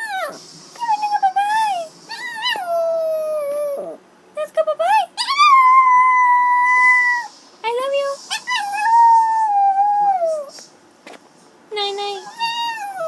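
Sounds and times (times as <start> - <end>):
dog howling: 0.0 - 0.4, 1.6 - 4.0, 5.2 - 7.3, 8.3 - 10.5, 12.2 - 13.0.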